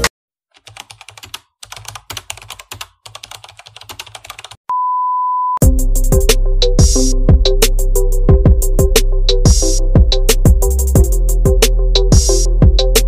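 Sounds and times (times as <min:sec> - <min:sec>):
loud music with a beat: 0:05.6 - 0:13.0.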